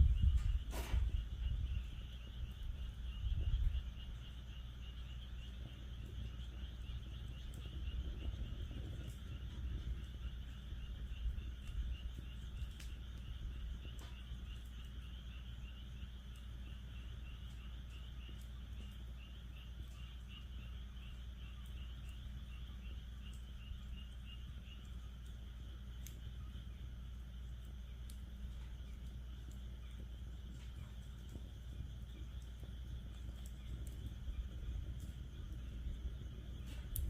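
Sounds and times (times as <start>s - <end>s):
low rumble: 0.0s - 15.8s, 28.1s - 37.0s
frogs calling: 0.0s - 37.0s
wood fire popping: 0.0s - 37.0s.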